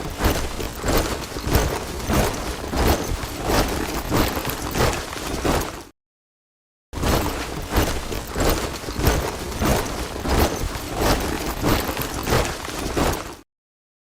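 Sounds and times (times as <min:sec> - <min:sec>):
soldiers marching in step: 0:00.0 - 0:05.9, 0:07.0 - 0:13.4.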